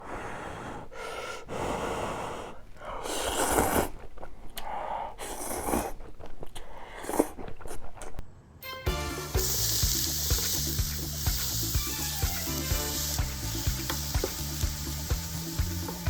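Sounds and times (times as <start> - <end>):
noodles being slurped: 3.0 - 8.2
chewing: 3.2 - 8.3.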